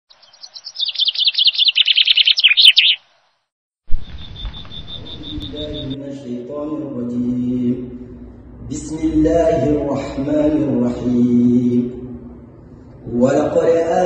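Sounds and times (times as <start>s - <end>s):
songbird twittering: 0.1s - 3.0s, 3.9s - 6.0s
pulsing high tone: 3.9s - 6.0s
held low tones: 3.9s - 13.2s
low rumble: 3.9s - 13.2s.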